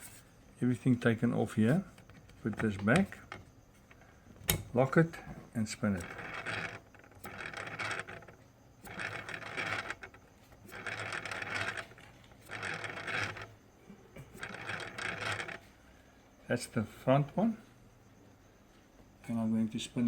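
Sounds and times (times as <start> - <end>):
propeller motor grinding and scraping: 5.7 - 13.6, 14.2 - 15.7.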